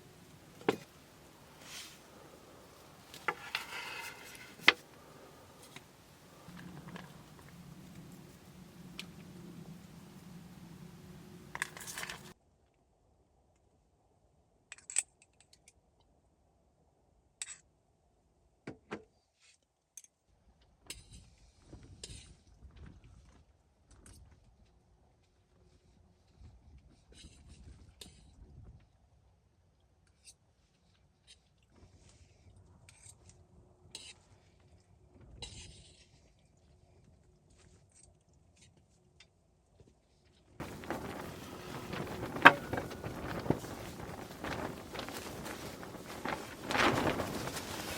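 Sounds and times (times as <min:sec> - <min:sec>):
low wind rumble: 0:00.0 - 0:12.3, 0:40.6 - 0:47.9
steady hiss: 0:00.0 - 0:12.3, 0:40.6 - 0:47.9
campfire clicks and crackles: 0:00.0 - 0:12.4, 0:40.6 - 0:47.9.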